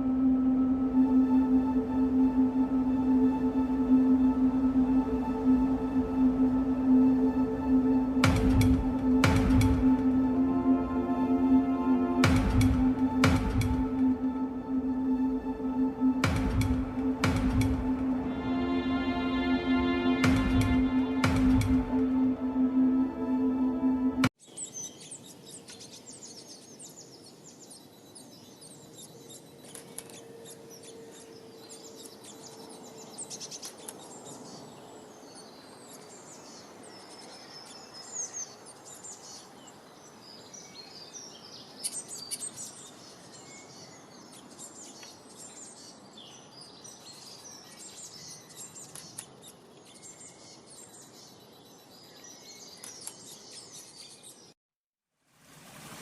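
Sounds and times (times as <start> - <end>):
steady background rush: 0.0 - 24.3
small birds chirping: 24.4 - 54.6.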